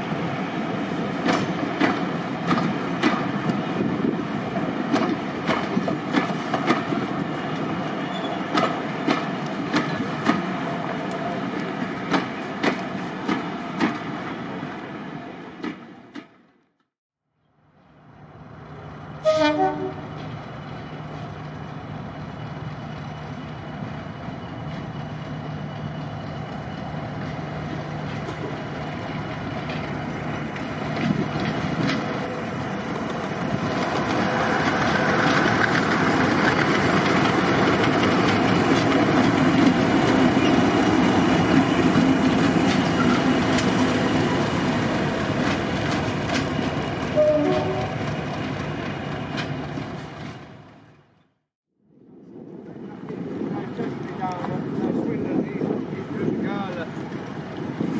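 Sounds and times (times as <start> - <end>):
diesel locomotive engine running: 17.6 - 51.2
train horn blast: 19.2 - 20.1, 47.1 - 48.0.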